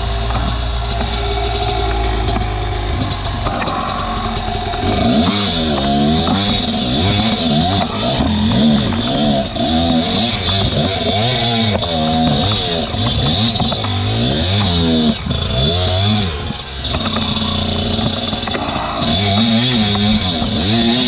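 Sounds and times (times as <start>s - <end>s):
clatter: 0.0s - 21.0s
motorcycle engine revving: 0.0s - 21.0s.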